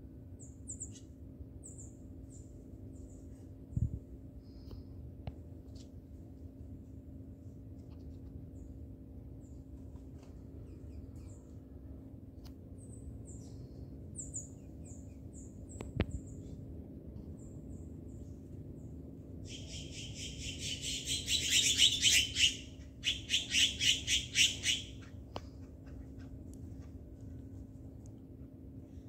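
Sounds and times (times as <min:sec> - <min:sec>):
harsh rapid bird chatter: 0:19.5 - 0:26.4.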